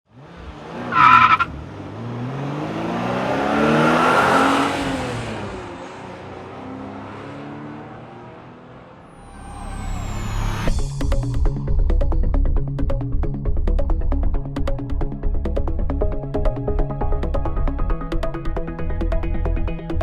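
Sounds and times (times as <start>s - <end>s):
car engine revving passing by: 0.1s - 10.8s
short high-pitched squeal: 9.0s - 10.8s.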